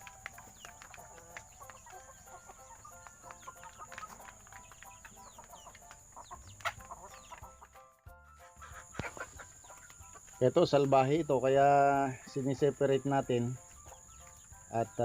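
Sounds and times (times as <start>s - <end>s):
chickens clucking softly: 0.1s - 7.8s, 8.4s - 12.1s.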